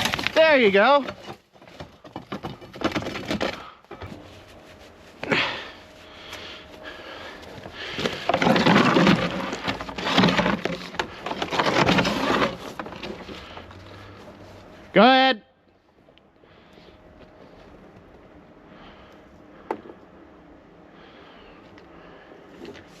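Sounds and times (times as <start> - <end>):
wood cracking and scraping: 0.0 - 4.3, 5.2 - 14.3.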